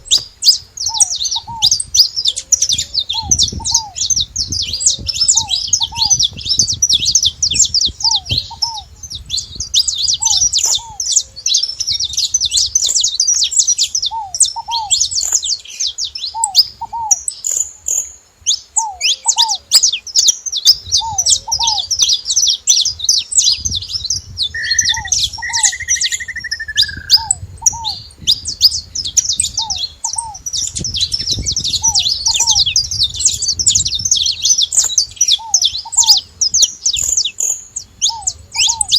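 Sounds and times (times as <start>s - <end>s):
finches chirping and twittering: 0.0s - 38.9s
falling bird whistle: 23.5s - 38.9s
short downslurred bird notes: 23.8s - 38.9s.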